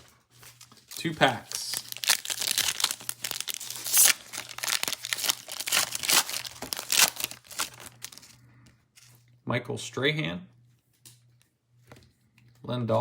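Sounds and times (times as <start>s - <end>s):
wrapper crinkling and tearing: 0.0s - 8.4s.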